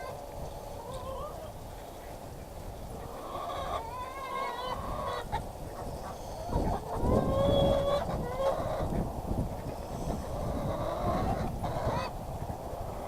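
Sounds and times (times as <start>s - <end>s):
poultry calling: 2.9s - 12.2s.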